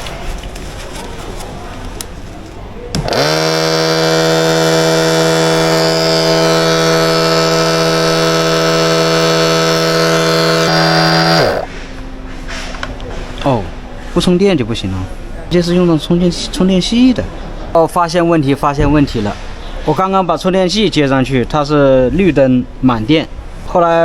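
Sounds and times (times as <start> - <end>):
electric motor whine: 3.0 - 11.8.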